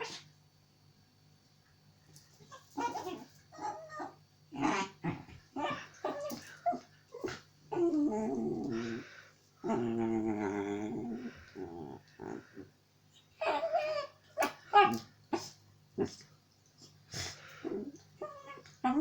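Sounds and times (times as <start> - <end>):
puppy calling: 2.5 - 4.9.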